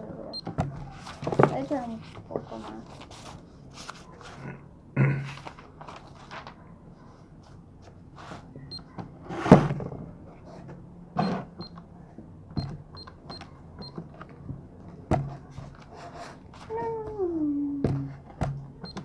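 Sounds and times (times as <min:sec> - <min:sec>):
knocks from slime handling: 0:17.1 - 0:19.0.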